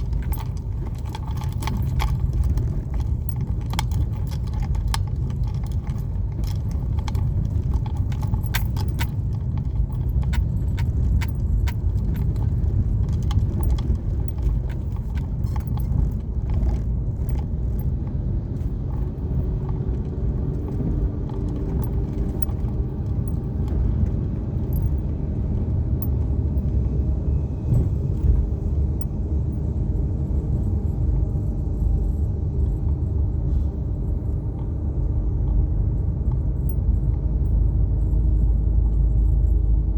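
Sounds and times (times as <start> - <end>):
sharp clicks and rattles: 0.0 - 26.7
road and tyre rumble: 0.0 - 39.9.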